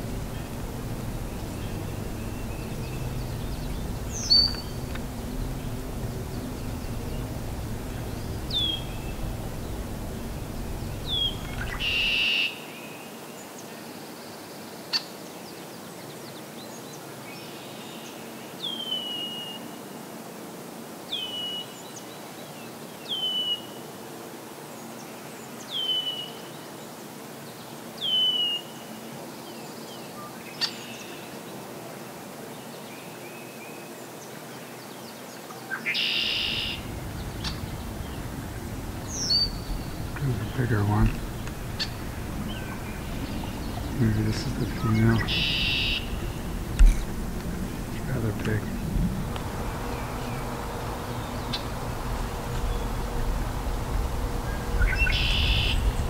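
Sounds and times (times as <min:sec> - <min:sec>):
songbird descending call: 0:00.0 - 0:12.6, 0:35.7 - 0:56.0.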